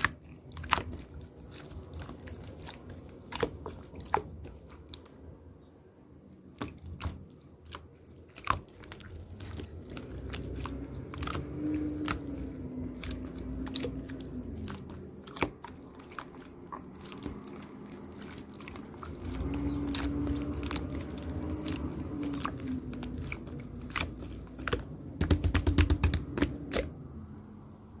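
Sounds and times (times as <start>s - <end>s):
slime squished by hand clicking: 23.9s - 26.9s.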